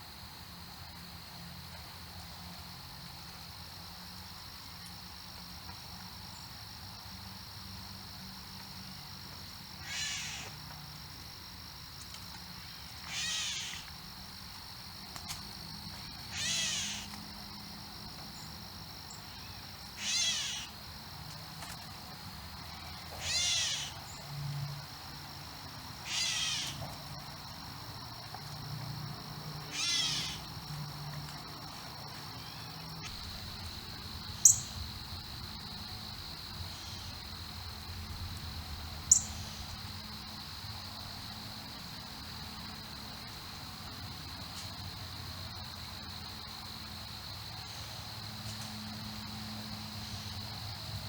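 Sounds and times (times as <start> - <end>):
bird harsh cat-like call: 9.8 - 10.4, 13.1 - 13.9, 16.3 - 17.1, 20.0 - 20.7, 22.8 - 24.0, 26.0 - 26.8, 29.7 - 30.4
insect trilling: 9.8 - 10.5, 13.1 - 13.9, 16.2 - 17.1, 19.2 - 20.8, 22.6 - 24.2, 26.0 - 26.8, 29.7 - 30.5, 32.4 - 35.8, 39.0 - 39.8.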